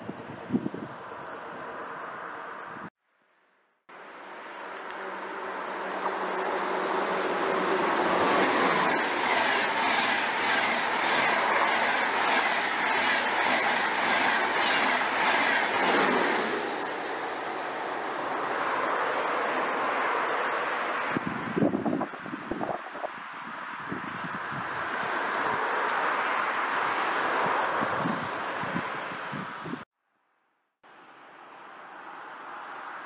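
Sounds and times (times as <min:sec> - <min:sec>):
train wheels clattering on rails: 0:07.2 - 0:18.0.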